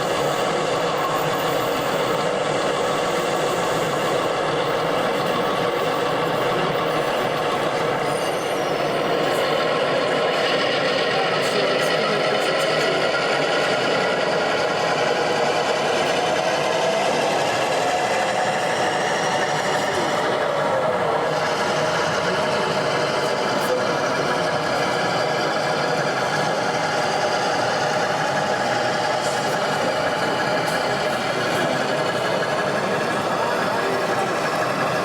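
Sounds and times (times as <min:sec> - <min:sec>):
babble of many voices: 0:00.0 - 0:35.0.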